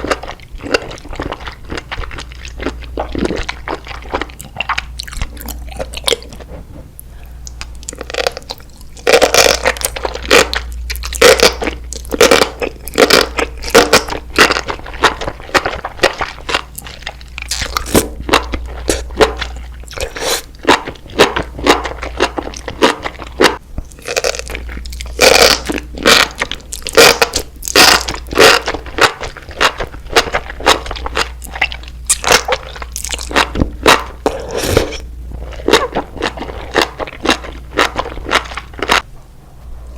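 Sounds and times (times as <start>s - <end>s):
person chewing crunchy food: 0.0s - 39.1s
low hum: 38.8s - 39.9s.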